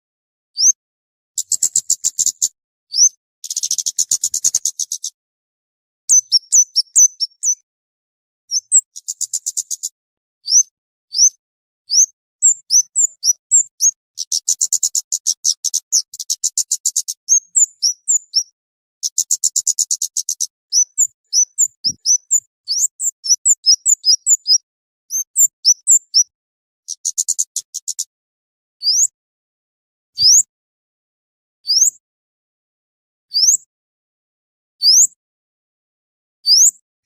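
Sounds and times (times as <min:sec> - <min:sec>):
high sharp bird chirping: 0:01.4 - 0:05.2, 0:06.1 - 0:07.6, 0:08.5 - 0:11.3, 0:11.9 - 0:26.3.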